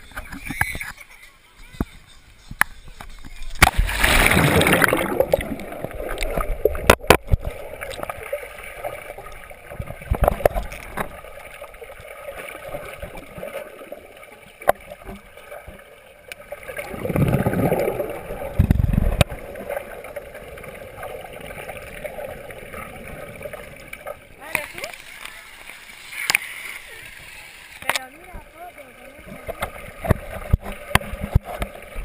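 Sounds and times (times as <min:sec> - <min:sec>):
muffled underwater water movement: 0:00.0 - 0:32.0
low bubbling bursts: 0:03.5 - 0:11.6, 0:16.4 - 0:24.4.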